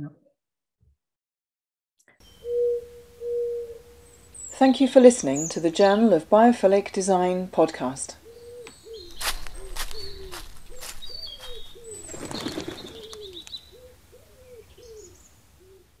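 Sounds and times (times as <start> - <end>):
low cooing bird notes: 2.2 - 4.6, 8.2 - 16.0.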